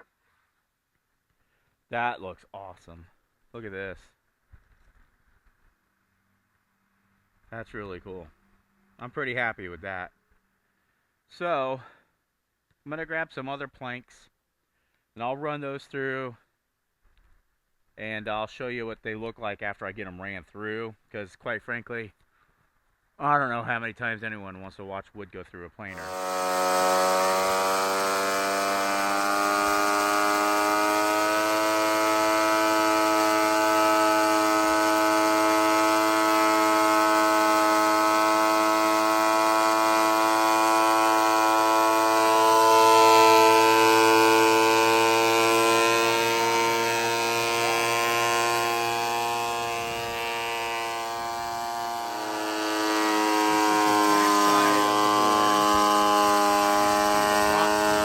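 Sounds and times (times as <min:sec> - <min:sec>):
plank feeding through planer: 0:26.0 - 0:58.0
thickness planer motor whining: 0:26.0 - 0:58.0.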